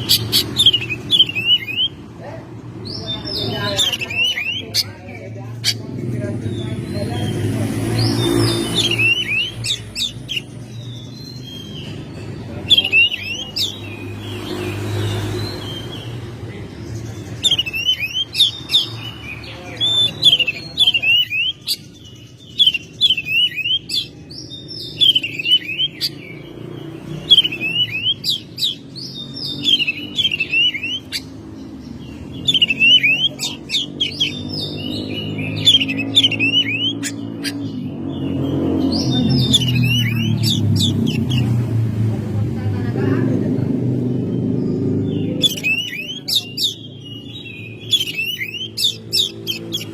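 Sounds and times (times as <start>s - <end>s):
bird singing whistled trills: 8.0s - 14.3s, 17.4s - 26.5s, 27.1s - 41.5s, 45.1s - 49.9s.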